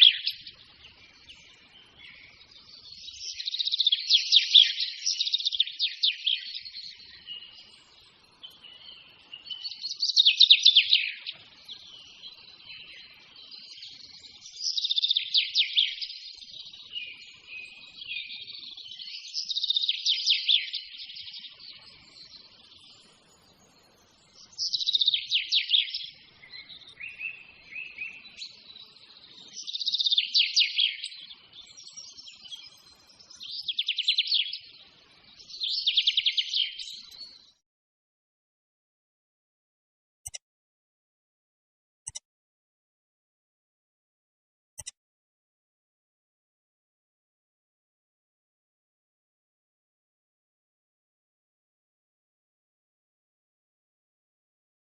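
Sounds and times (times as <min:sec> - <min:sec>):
soft bird chirping: 0:00.0 - 0:37.6
songbird trilling: 0:24.6 - 0:28.5.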